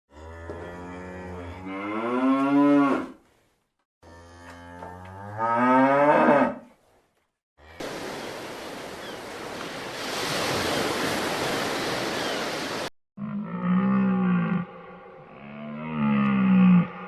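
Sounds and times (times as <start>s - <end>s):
cow mooing: 0.1s - 3.2s, 4.0s - 6.7s, 13.2s - 17.0s.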